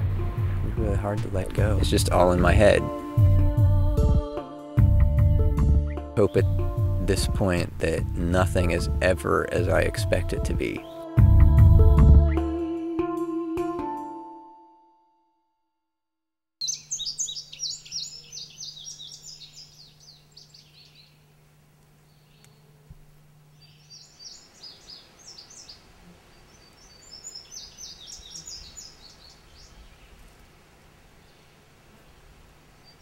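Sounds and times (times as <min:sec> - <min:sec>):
songbirds chirping: 0:00.7 - 0:03.5, 0:06.2 - 0:11.1, 0:16.6 - 0:33.0.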